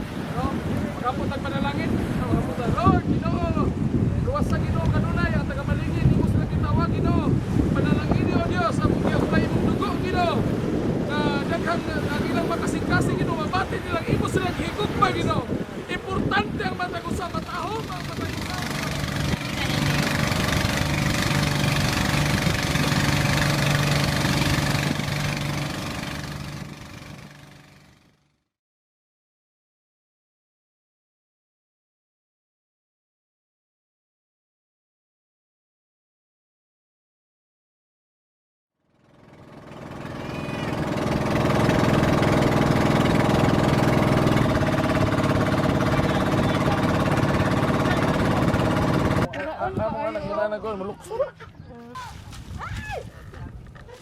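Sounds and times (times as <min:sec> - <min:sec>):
engine humming: 0:17.9 - 0:28.3, 0:38.9 - 0:49.3.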